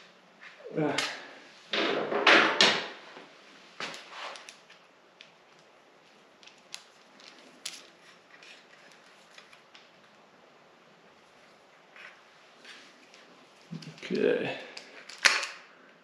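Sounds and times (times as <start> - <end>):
small screws and plastic parts rattling: 4.4 - 10.0.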